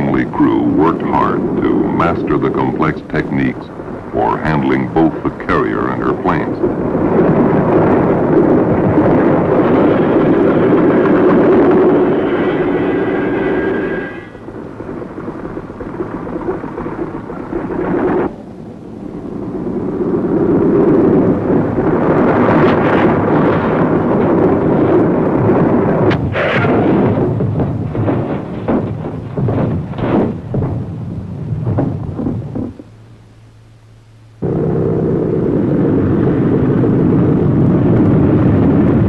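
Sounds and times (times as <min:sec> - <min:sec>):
piston aircraft engine rumbling: 0:00.0 - 0:39.0
sharp bangs: 0:26.0 - 0:33.0.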